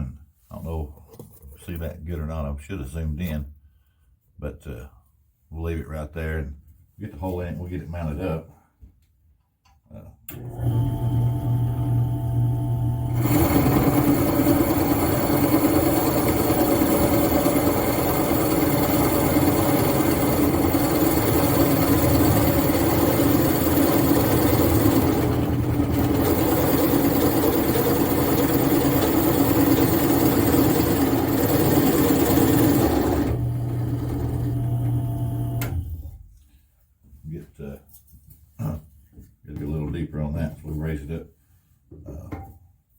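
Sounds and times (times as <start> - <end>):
drill press boring wood: 10.3 - 36.1
drill press motor running free: 10.3 - 36.1.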